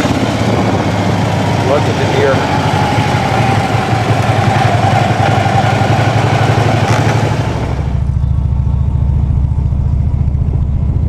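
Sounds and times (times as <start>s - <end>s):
wind rushing over microphone: 0.0s - 8.1s
motorcycle engine running: 0.0s - 11.0s.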